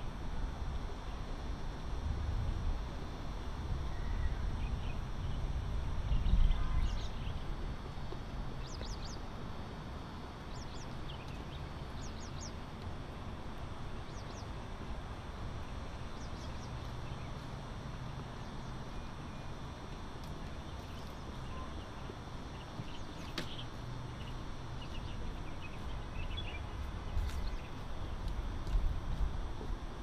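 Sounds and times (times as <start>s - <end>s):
low outdoor rumble: 0.0s - 30.0s
small birds chirping: 3.9s - 7.5s, 8.6s - 9.4s, 10.4s - 12.7s, 14.0s - 15.0s, 15.6s - 28.9s.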